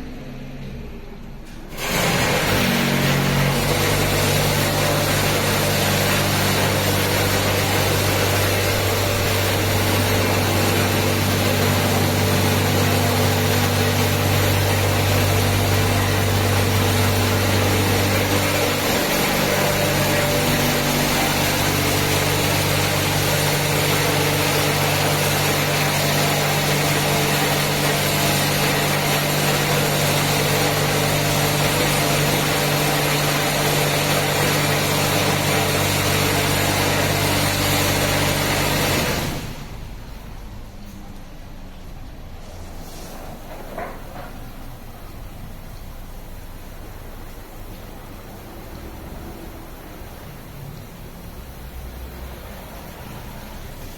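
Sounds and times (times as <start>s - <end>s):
car wash motor hum: 0.0s - 53.9s
water spray hiss: 3.7s - 38.9s.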